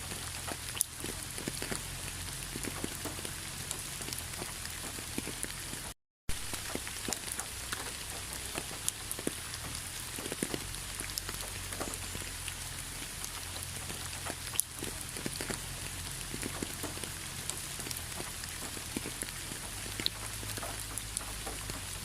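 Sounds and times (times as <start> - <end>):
raindrops tapping on a surface: 0.0 - 22.0
steady rain hiss: 0.0 - 22.0.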